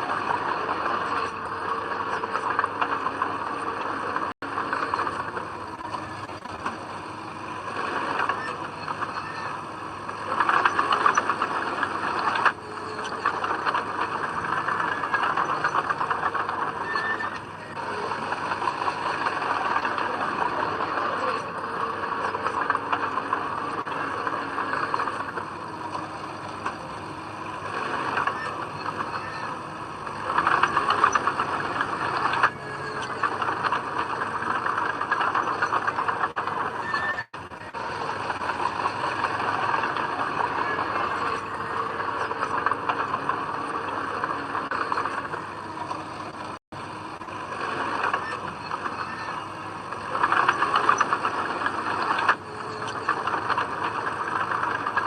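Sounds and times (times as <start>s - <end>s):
heavy diesel machinery engine: 0.0s - 55.0s.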